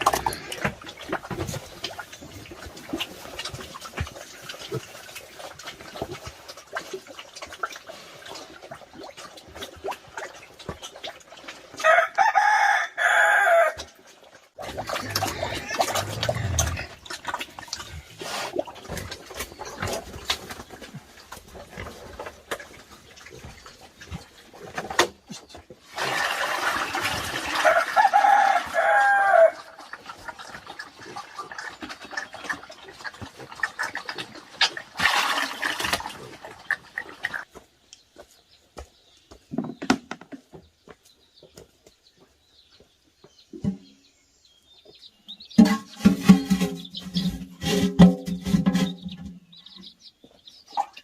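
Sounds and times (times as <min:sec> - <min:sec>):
rooster crowing: 0:11.8 - 0:13.8, 0:27.6 - 0:29.6.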